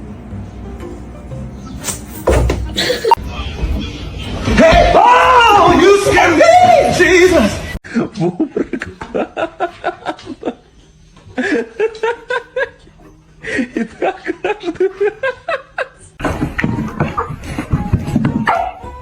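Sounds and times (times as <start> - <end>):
person laughing hard: 2.8 - 3.2.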